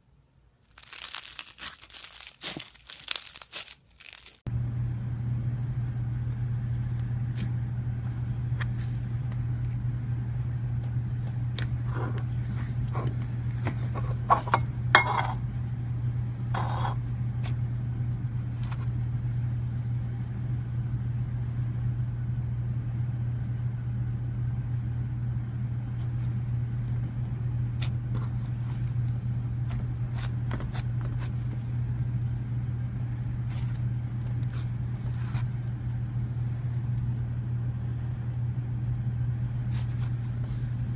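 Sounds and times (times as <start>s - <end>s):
steady low hum: 0.0s - 40.9s
slime squeezed by hand: 0.7s - 4.4s.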